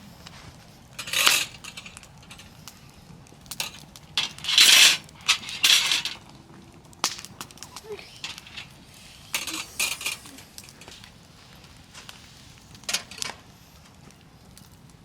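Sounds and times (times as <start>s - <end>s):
metal cookware clinking and scraping: 1.0s - 2.4s, 3.6s - 6.2s, 8.2s - 8.7s, 9.4s - 10.9s, 12.9s - 13.4s.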